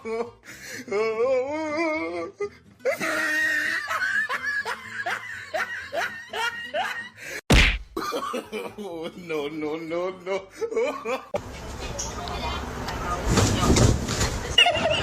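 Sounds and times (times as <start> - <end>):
person laughing hard: 2.9 - 7.2, 8.0 - 9.0, 10.2 - 11.4
loud thump: 7.5 - 8.0.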